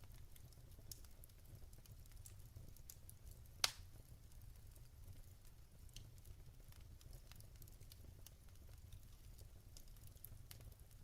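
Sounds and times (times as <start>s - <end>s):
log fire crackling: 0.0s - 11.0s.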